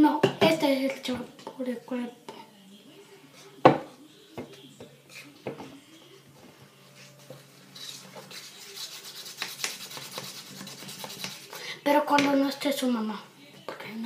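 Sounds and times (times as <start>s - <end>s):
utensil stirring thick slime: 7.8s - 11.6s.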